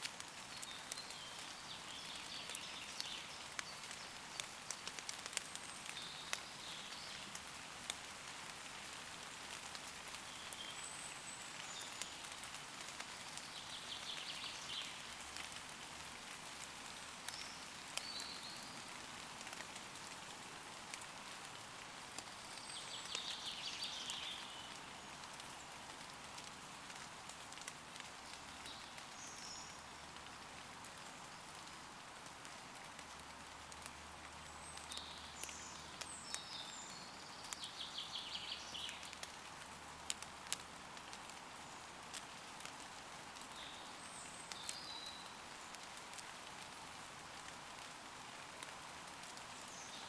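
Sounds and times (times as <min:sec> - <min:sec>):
rain falling on leaves: 0:00.0 - 0:50.0
raindrops ticking: 0:00.0 - 0:50.0
woodland birds singing: 0:00.5 - 0:07.3, 0:10.2 - 0:12.3, 0:13.2 - 0:15.0, 0:17.3 - 0:18.9, 0:22.4 - 0:25.8, 0:28.5 - 0:29.9, 0:34.4 - 0:39.4, 0:43.4 - 0:45.4, 0:49.6 - 0:50.0.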